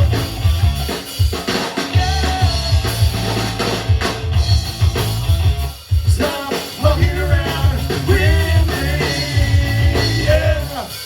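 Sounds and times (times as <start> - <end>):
bass drum and snare hits: 0.0 - 10.8
rock band playing: 0.0 - 11.0.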